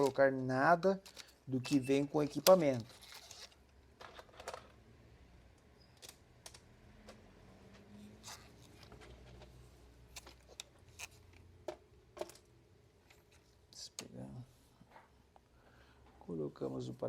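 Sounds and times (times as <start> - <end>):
small parts clicking and tapping: 10.2 - 14.1.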